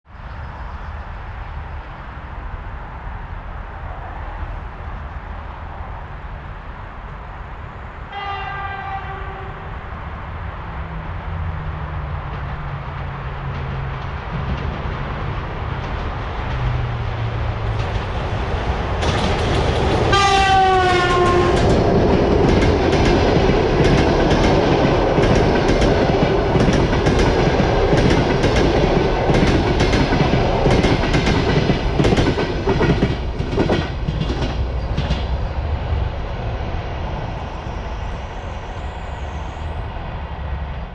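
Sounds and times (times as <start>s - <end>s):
locomotive horn blast: 8.1s - 9.6s, 20.1s - 21.6s
train wheels clicking over rail joints: 12.2s - 35.4s.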